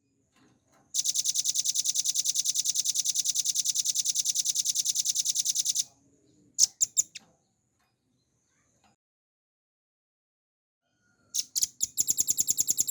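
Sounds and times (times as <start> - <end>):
bird singing fast trill: 1.0 - 5.8, 6.6 - 7.2, 11.4 - 12.9.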